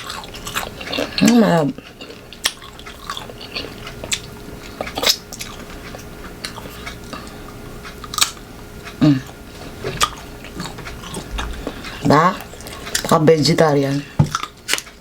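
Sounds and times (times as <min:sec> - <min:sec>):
chewing crisp mango: 0:00.0 - 0:13.2
person humming: 0:09.0 - 0:09.4.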